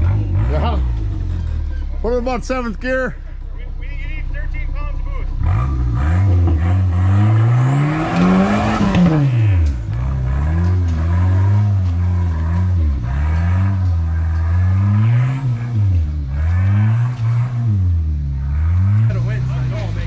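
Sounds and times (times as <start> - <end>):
engine revving: 0.0 - 20.0.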